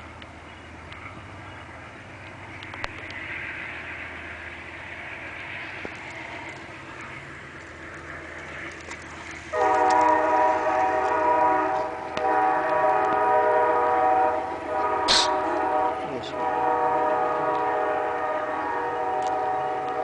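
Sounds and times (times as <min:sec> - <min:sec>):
locomotive air horn: 0:09.5 - 0:20.0.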